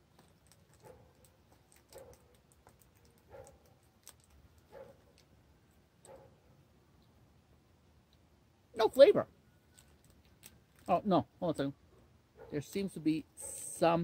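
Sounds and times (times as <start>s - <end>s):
person chewing: 0.0s - 5.4s, 9.6s - 10.9s
small sharp mouth clicks: 0.1s - 5.3s.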